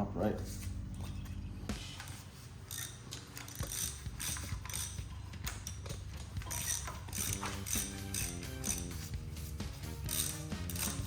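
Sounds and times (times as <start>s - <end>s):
ratchet wrench clicking: 2.6s - 9.0s, 9.8s - 11.0s.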